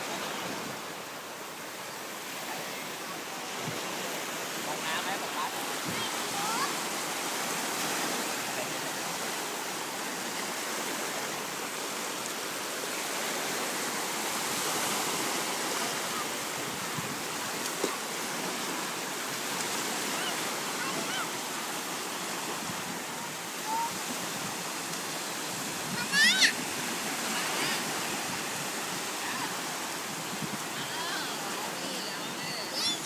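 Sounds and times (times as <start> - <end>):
surf washing at shore: 0.0 - 33.0.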